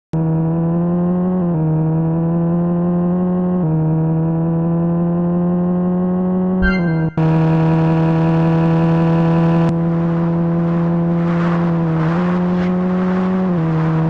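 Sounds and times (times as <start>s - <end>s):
car exhaust drone at high revs: 7.2s - 14.0s.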